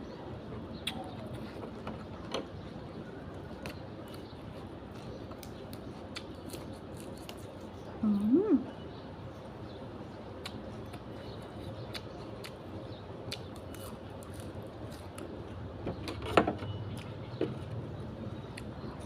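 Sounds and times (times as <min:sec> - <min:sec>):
low background hum: 0:00.0 - 0:19.0
chewing: 0:10.4 - 0:15.4.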